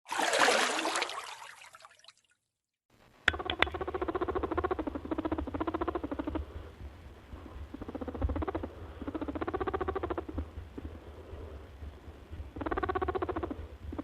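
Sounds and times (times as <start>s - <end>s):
small animal rattling calls: 3.3s - 6.5s, 7.6s - 10.9s, 12.4s - 14.0s.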